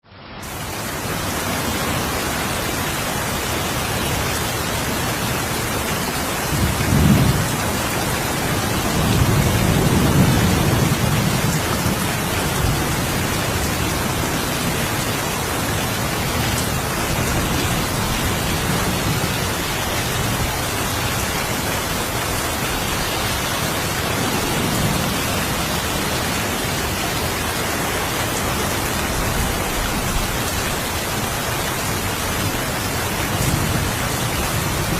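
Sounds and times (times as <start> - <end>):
steady rain falling: 0.1 - 34.9
low thunder rumbles: 6.4 - 14.7.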